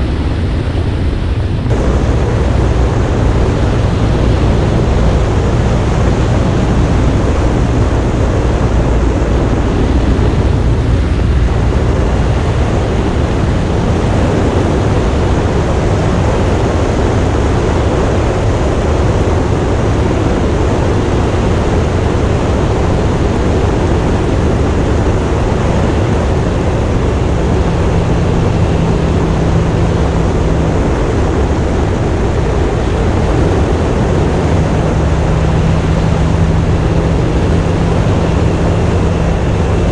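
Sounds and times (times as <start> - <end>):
motorcycle engine drone: 0.0 - 39.9
wind rush on microphone: 0.0 - 39.9.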